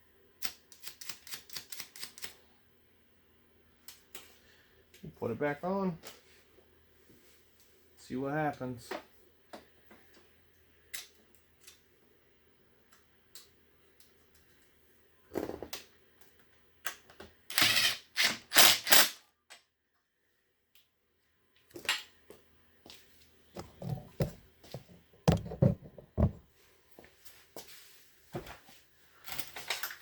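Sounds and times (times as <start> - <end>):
tools and parts knocking: 23.6 - 26.4.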